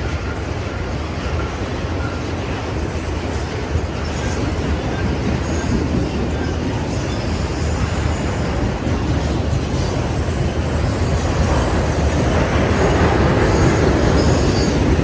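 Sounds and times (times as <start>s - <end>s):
freight train rumbling on rails: 0.0s - 15.0s
faint wheel squeal: 13.3s - 15.0s.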